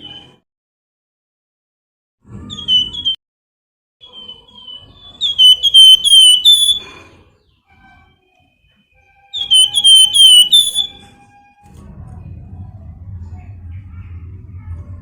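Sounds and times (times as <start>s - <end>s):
songbird whistled call: 2.5s - 3.2s, 4.0s - 7.0s, 9.3s - 11.2s.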